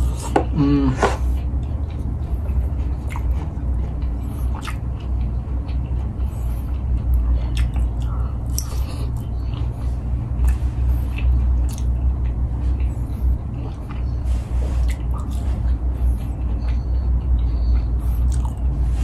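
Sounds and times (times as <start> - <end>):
low hum: 0.0 - 19.0
person chewing food: 0.0 - 19.0
wet mouth clicks and smacks: 3.0 - 3.5, 4.4 - 5.0, 7.1 - 9.7, 10.4 - 12.0, 18.2 - 18.6.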